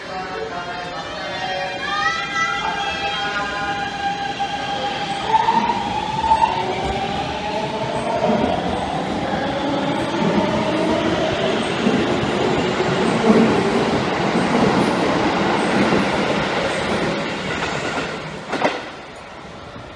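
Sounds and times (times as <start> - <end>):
electric train wheels on rails: 0.1 - 19.9.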